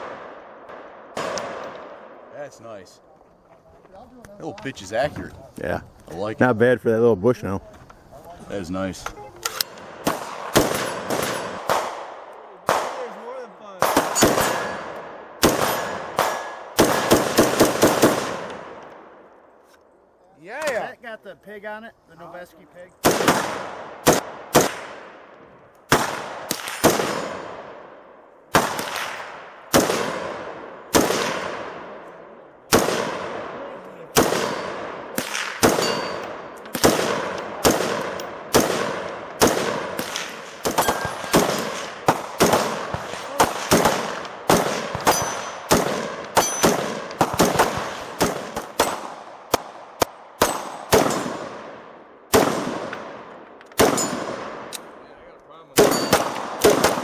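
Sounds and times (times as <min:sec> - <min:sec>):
gunshots with ringing echo: 0:00.0 - 0:02.4, 0:09.5 - 0:19.3, 0:23.0 - 0:25.3, 0:25.9 - 0:55.0, 0:55.8 - 0:57.0.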